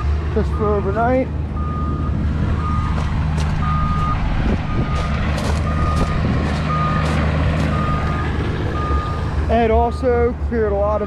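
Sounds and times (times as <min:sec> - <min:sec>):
backup alarm beeping: 0:01.6 - 0:03.0, 0:03.6 - 0:09.2.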